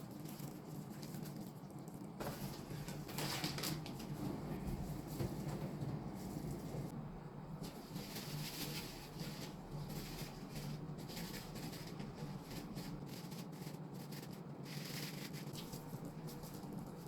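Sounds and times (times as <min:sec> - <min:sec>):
steady low hum: 0:00.0 - 0:17.0
handling food and utensils: 0:02.2 - 0:06.9.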